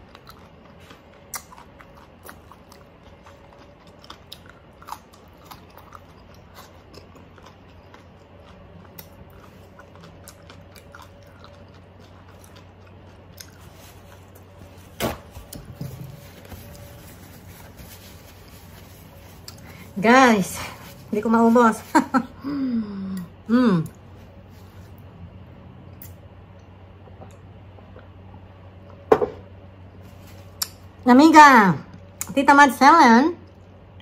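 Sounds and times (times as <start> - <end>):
chewing crunchy food: 0.0 - 20.0.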